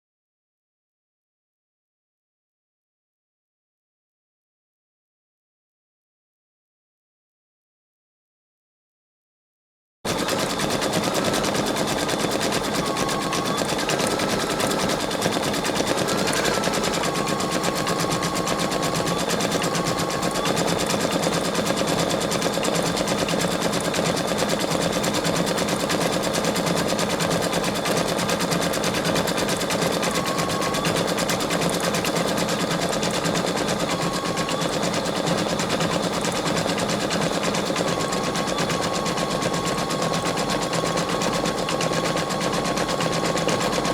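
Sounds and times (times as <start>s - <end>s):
embroidery machine needle clatter: 10.1s - 43.9s
faint motor whine: 10.1s - 43.9s.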